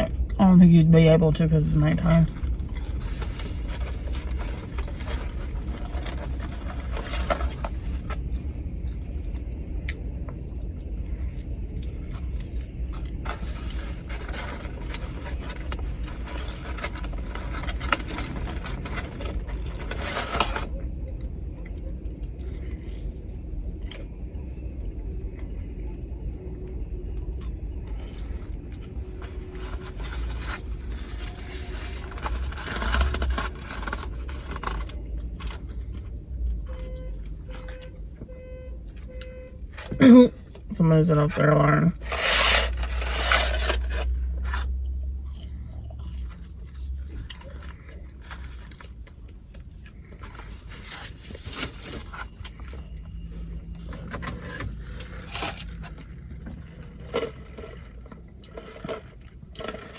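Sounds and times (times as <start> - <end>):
steady low rumble: 0.0 - 59.8
packaging rustling: 2.2 - 8.3, 12.9 - 20.7, 28.9 - 35.9, 42.0 - 44.7.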